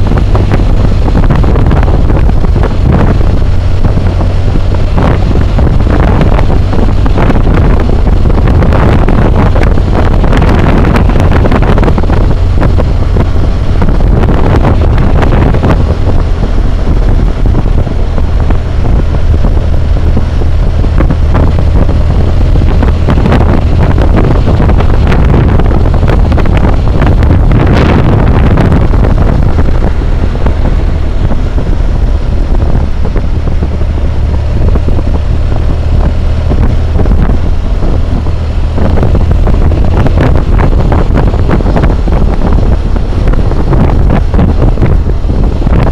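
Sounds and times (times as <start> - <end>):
motorcycle engine running: 0.0 - 45.9
wind roar on microphone: 0.0 - 45.9.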